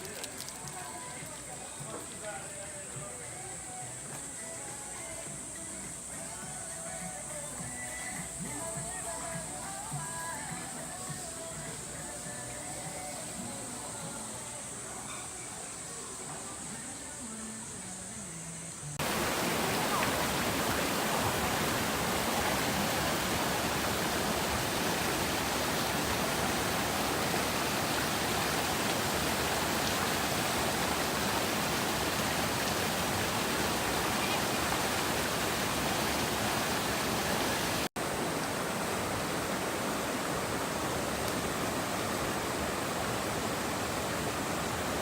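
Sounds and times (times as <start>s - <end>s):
stream rushing over rocks: 0.0s - 3.0s, 19.0s - 45.0s.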